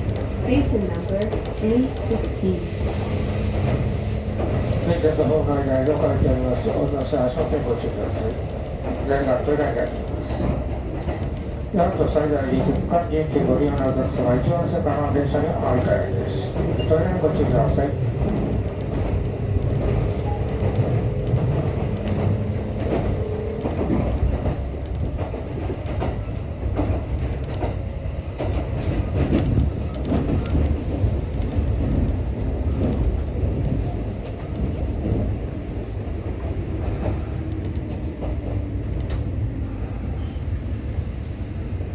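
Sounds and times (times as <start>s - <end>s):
train wheel clicks and knocks: 0.0s - 39.4s
train rumble inside car: 0.0s - 41.9s.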